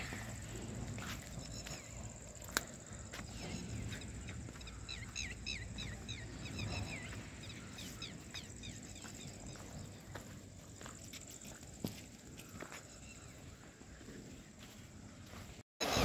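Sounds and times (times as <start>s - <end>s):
low outdoor rumble: 0.0s - 10.9s
small birds chirping: 0.0s - 15.6s.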